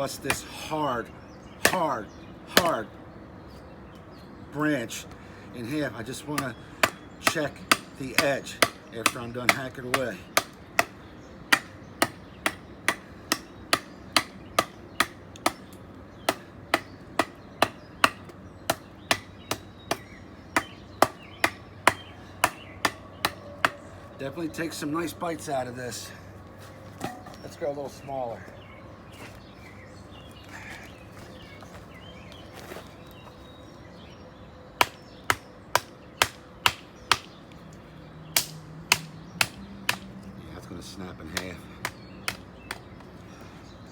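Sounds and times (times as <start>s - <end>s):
knife chopping wood: 1.6s - 2.0s, 2.6s - 2.8s, 6.4s - 23.8s, 34.8s - 37.4s, 38.4s - 40.1s, 41.3s - 42.9s.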